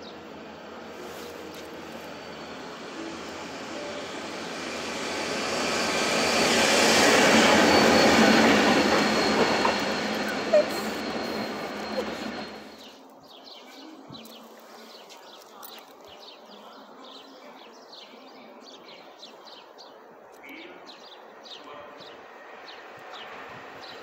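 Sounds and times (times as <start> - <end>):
small birds chirping: 7.7 - 24.0.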